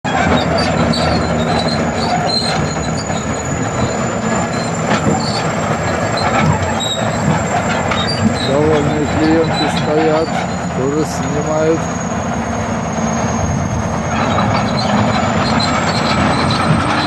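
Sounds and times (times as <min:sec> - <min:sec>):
bulldozer running: 0:00.0 - 0:17.0
high metallic squeals: 0:00.0 - 0:17.0
metal clanks: 0:00.1 - 0:11.8.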